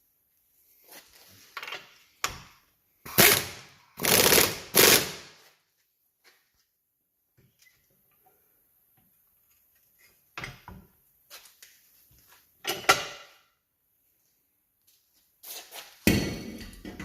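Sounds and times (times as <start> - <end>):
impact wrench rattling: 3.1 - 5.3.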